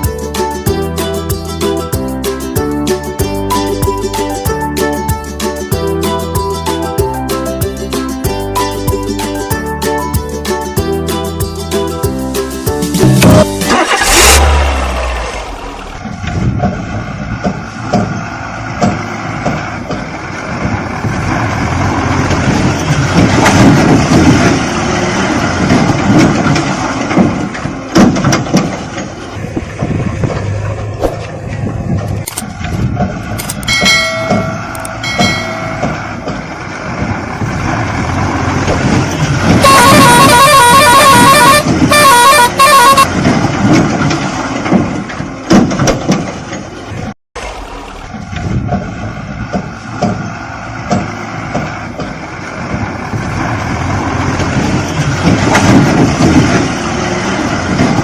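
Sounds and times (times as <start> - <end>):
toy vehicles rattling and knocking: 25.5 - 30.6
toy horn beeps: 39.6 - 43.1
toy horn honks: 39.6 - 43.2.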